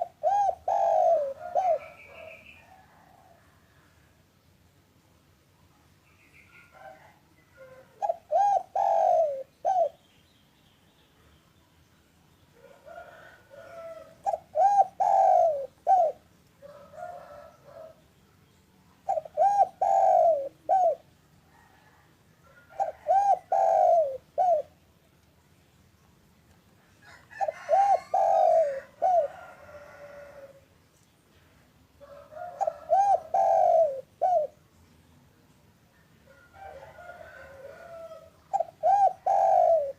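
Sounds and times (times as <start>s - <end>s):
dove cooing: 0.0s - 3.7s, 6.7s - 10.0s, 12.6s - 18.0s, 19.0s - 24.8s, 27.1s - 30.6s, 32.0s - 34.6s, 36.4s - 39.9s.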